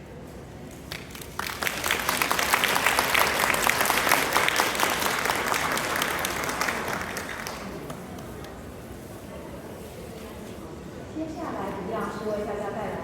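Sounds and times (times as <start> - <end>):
audience applauding: 0.9 - 8.6.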